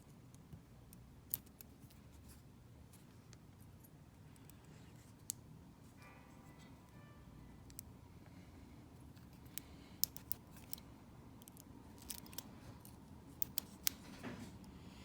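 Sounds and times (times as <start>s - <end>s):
lock parts clicking and tapping: 9.2s - 10.8s, 11.4s - 14.2s.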